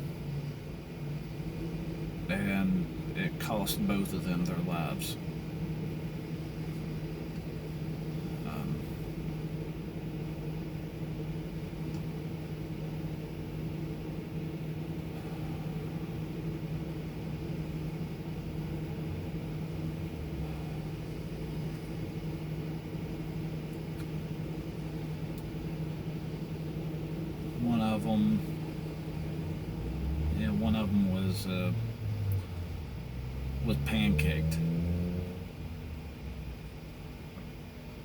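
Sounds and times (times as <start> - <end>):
truck engine low hum: 0.0 - 38.0.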